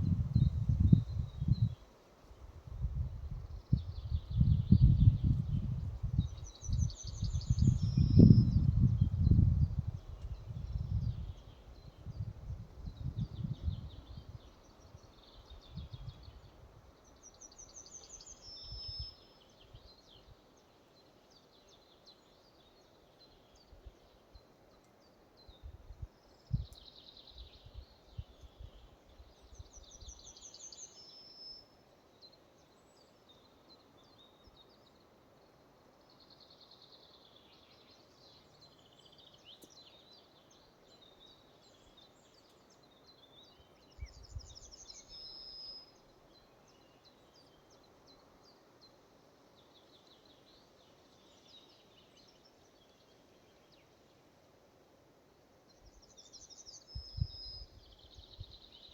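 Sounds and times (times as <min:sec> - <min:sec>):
low rumbling wind gusts: 0:00.0 - 0:01.8, 0:02.4 - 0:15.0
songbirds singing trilled phrases: 0:03.3 - 0:20.3, 0:36.0 - 0:54.2, 0:55.7 - 0:58.9.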